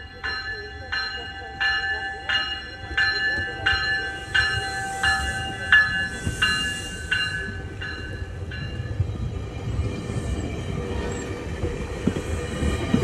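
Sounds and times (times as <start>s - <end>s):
locomotive bell ringing: 0.0s - 9.0s
rumble of moving train: 0.0s - 13.0s.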